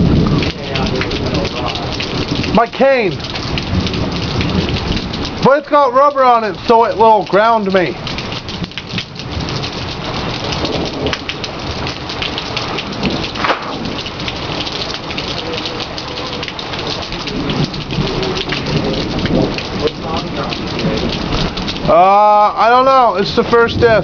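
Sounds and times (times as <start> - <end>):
rumble of thunder: 0.0 - 5.4, 7.9 - 22.0, 23.4 - 24.0
heavy rain pouring: 0.0 - 24.0.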